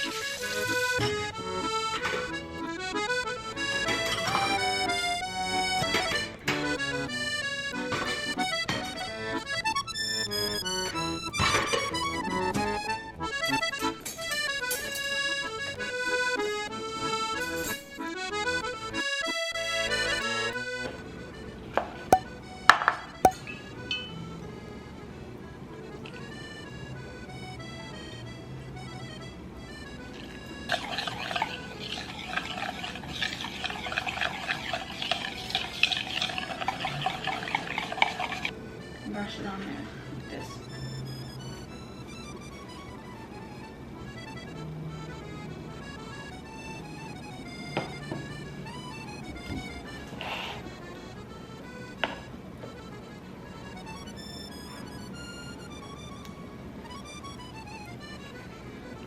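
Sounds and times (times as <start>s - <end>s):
accordion music: 0.0s - 59.0s
spoon stirring in a bowl: 30.7s - 38.5s.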